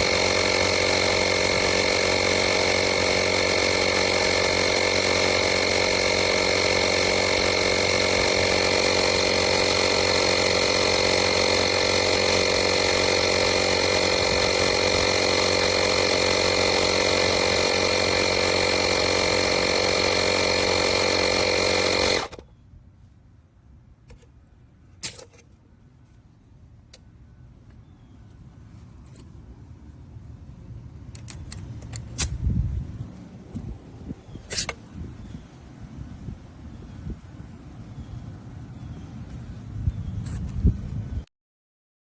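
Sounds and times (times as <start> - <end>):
tire inflator compressor running: 0.0 - 22.5.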